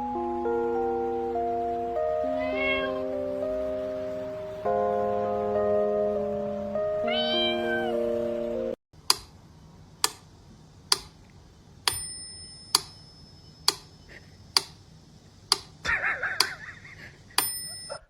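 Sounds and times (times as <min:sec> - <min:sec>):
sharp clock-like ticks: 0:09.0 - 0:09.4, 0:10.9 - 0:11.2, 0:12.7 - 0:14.8, 0:15.4 - 0:15.8, 0:16.4 - 0:16.6.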